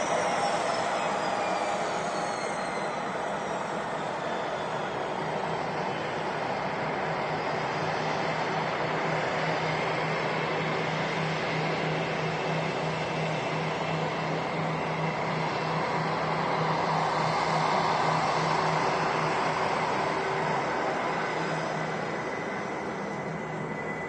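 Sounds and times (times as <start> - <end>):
jet engines running: 0.0 - 24.0.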